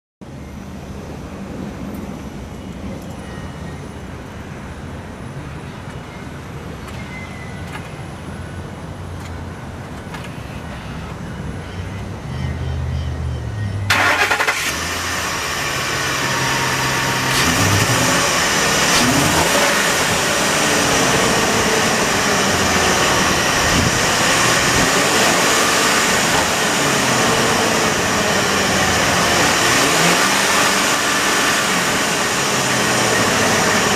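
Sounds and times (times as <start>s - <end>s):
pickup engine starting and revving: 13.9s - 33.9s.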